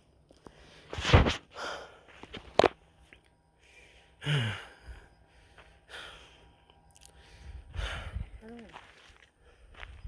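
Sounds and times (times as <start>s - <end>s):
person sighing: 4.2s - 4.8s
footsteps on dirt trail: 5.3s - 6.2s, 7.1s - 10.0s.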